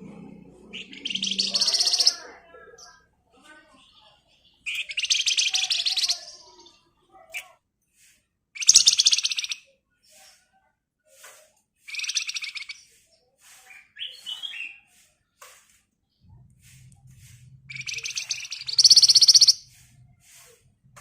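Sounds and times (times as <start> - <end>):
bird chirps: 0.3 - 3.0, 3.8 - 7.5, 8.6 - 9.7, 11.9 - 14.9, 17.7 - 19.8
songbird rattling trill: 0.7 - 2.2, 4.6 - 6.2, 8.6 - 9.6, 17.7 - 19.7
whistled bird notes: 0.7 - 2.2, 4.6 - 6.8, 11.9 - 13.0, 13.6 - 14.9, 17.7 - 19.7.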